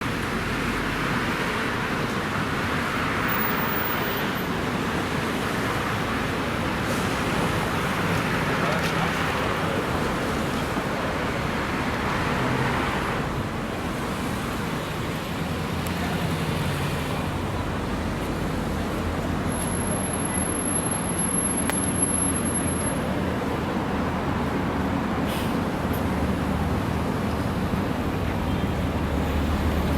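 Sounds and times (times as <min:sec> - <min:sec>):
road traffic passing: 0:00.0 - 0:29.9.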